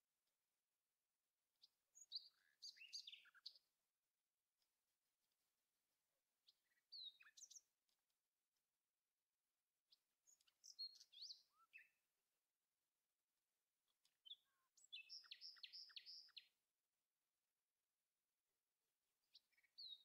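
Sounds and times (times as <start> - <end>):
birdsong chirps and whistles: 1.6 - 3.7, 6.4 - 7.8, 9.9 - 12.0, 14.0 - 16.6, 19.2 - 20.0.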